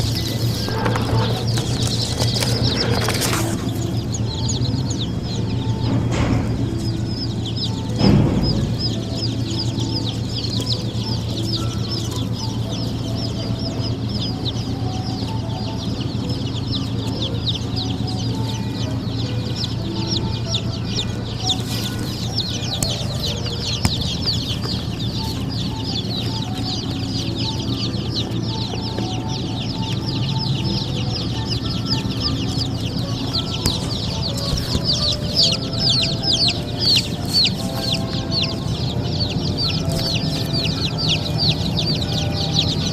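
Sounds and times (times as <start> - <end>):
baby chicks peeping: 0.0 - 42.9
steady low hum: 0.0 - 42.9.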